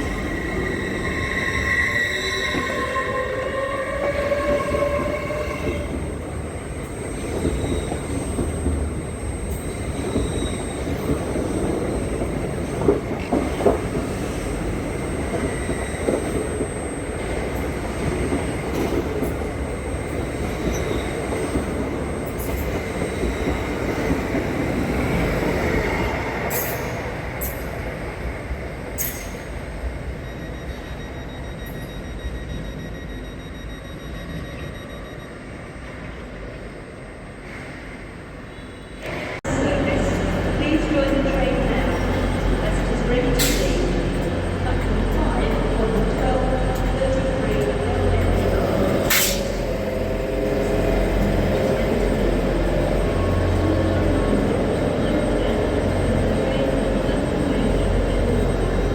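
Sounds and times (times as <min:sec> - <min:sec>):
train rumbling on rails: 0:00.0 - 0:58.9
faint wheel squeal: 0:00.2 - 0:05.9.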